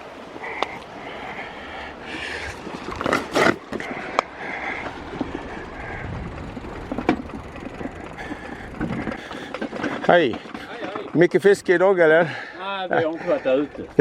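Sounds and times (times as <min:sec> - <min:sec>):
bicycle freewheel ticking: 0:00.5 - 0:03.0, 0:03.6 - 0:10.9, 0:13.2 - 0:14.0
bicycle parts rattling: 0:00.6 - 0:11.7, 0:13.1 - 0:14.0.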